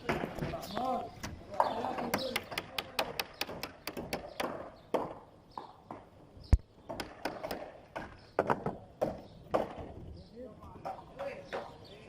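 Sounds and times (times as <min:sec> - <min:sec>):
construction taps and clicks: 0:02.0 - 0:09.8.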